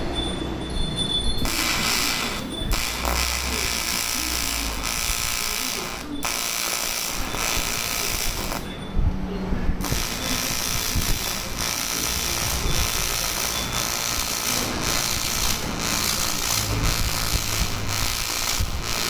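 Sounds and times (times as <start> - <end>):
welding arc hissing: 1.4 - 8.8, 9.8 - 19.0.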